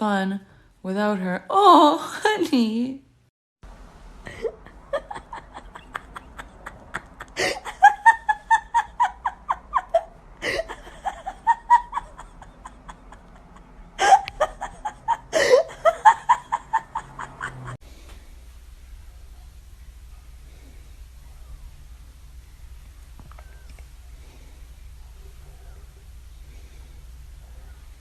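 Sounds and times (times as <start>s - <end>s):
person laughing hard: 4.3s - 17.8s.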